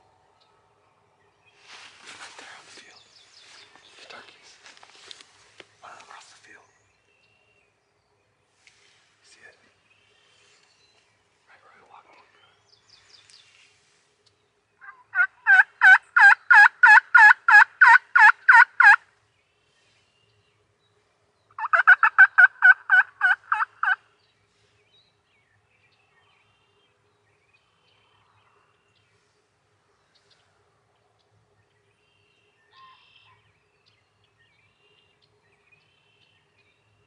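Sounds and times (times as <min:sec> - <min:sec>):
turkey yelping: 0:14.8 - 0:19.0, 0:21.6 - 0:24.0.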